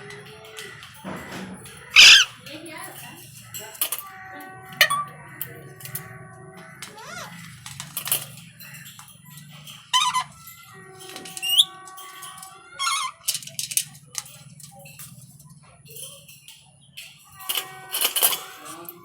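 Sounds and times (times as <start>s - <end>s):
parrot squawking and whistling: 2.0s - 2.3s, 4.8s - 5.1s, 9.9s - 10.3s, 12.8s - 13.1s.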